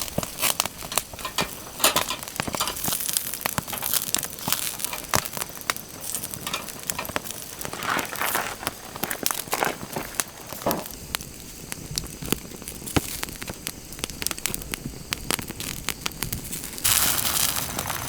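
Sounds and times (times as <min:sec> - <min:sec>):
campfire crackling and popping: 0:00.0 - 0:18.0
loud hiss: 0:00.0 - 0:18.0.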